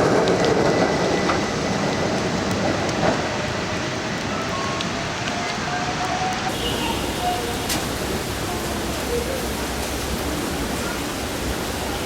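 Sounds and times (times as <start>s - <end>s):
electric train rolling: 0.0s - 11.9s.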